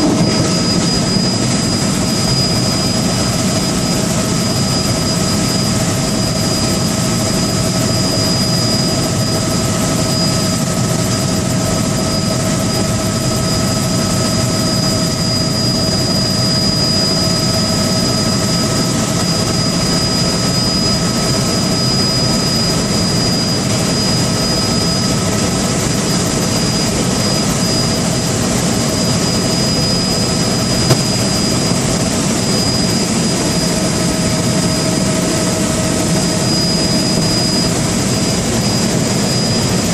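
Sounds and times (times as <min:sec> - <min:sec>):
aircraft engine whine: 0:00.0 - 0:39.9
brief click: 0:30.9 - 0:31.1.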